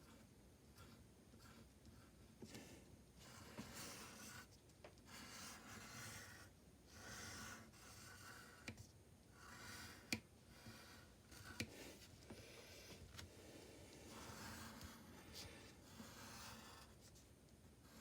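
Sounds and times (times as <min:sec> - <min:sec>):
drawing strokes on paper: 0:00.0 - 0:04.5, 0:05.1 - 0:18.0.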